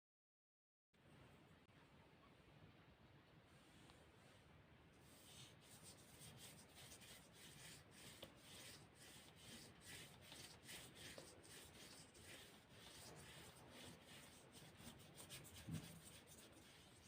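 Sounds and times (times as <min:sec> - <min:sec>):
rubbing strokes on paper: 0:05.0 - 0:17.0.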